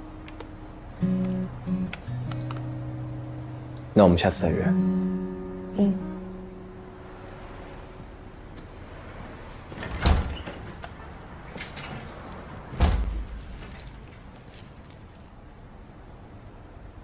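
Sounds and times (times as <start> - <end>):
door thumps: 12.7 - 13.7.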